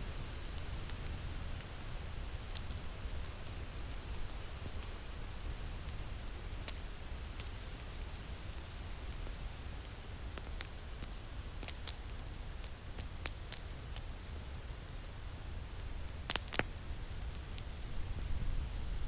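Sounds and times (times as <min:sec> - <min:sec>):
fire crackling and popping: 0:00.1 - 0:19.0
low rumble of wind: 0:15.1 - 0:19.0.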